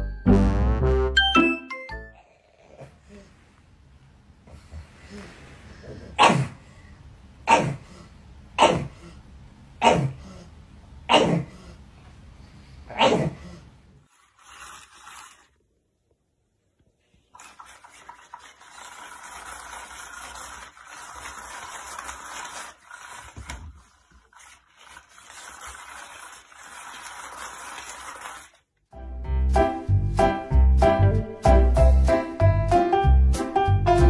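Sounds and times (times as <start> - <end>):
spinning cat toy whirring: 14.1 - 15.6, 17.4 - 28.6.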